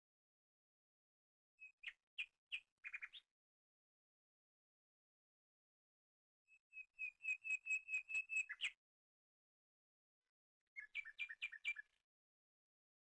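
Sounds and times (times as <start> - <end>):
songbird whistling: 6.7 - 8.8, 10.8 - 12.0.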